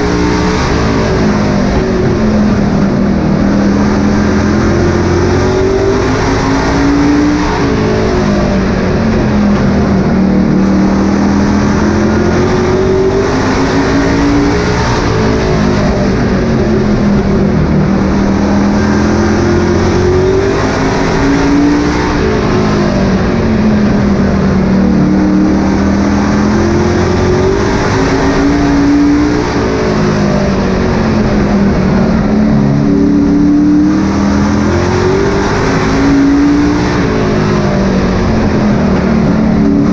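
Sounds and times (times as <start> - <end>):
race truck engine accelerating: 0.0 - 39.9.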